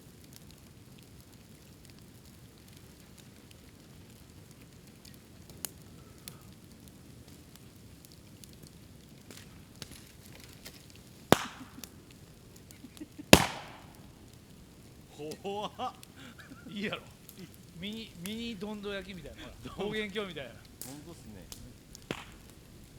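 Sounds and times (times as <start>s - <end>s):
bonfire crackling: 0.0s - 22.9s
bamboo bursting with loud bangs: 9.3s - 12.0s, 13.3s - 14.3s, 21.9s - 22.7s.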